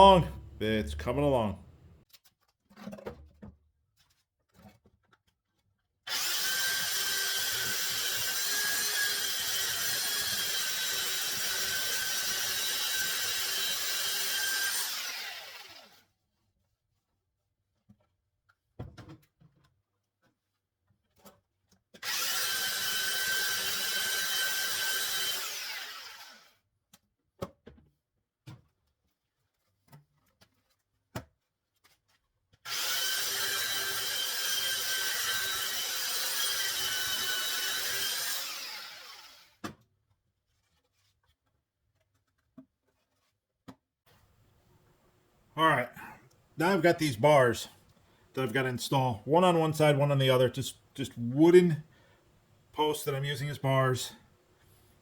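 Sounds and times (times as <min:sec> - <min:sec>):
electric hand planer whining: 0:06.1 - 0:15.9, 0:22.0 - 0:26.4, 0:32.7 - 0:39.4.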